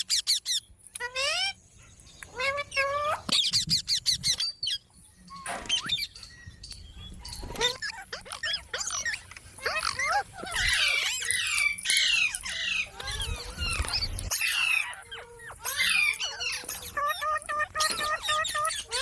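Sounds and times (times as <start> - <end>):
parrot chattering and squawking: 2.3 - 4.8, 7.3 - 19.0.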